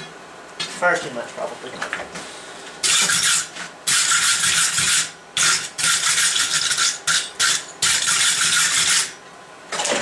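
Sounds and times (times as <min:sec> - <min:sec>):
hand tool scraping steel: 0:02.8 - 0:09.2.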